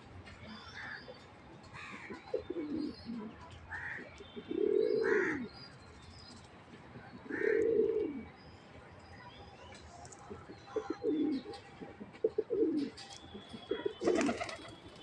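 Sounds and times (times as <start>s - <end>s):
pigeons cooing: 2.0s - 3.4s, 4.4s - 5.5s, 7.2s - 8.3s, 13.6s - 14.7s.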